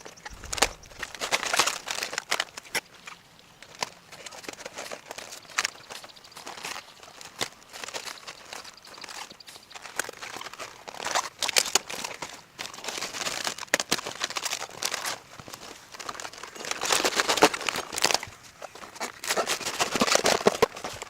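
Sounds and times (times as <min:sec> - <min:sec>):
rustling and crinkling: 0:00.0 - 0:21.0.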